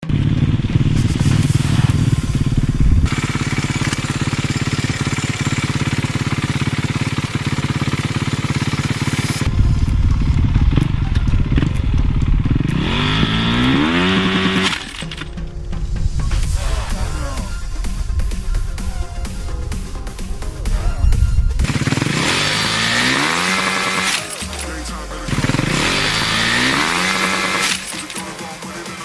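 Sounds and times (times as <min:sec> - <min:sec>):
dirt bike engine revving: 0:00.0 - 0:29.0
dirt bike engines running: 0:00.0 - 0:29.0.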